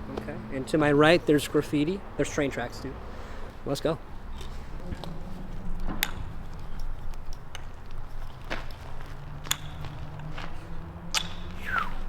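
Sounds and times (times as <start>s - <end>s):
low steady hum: 4.0s - 12.0s
footsteps: 4.2s - 12.0s.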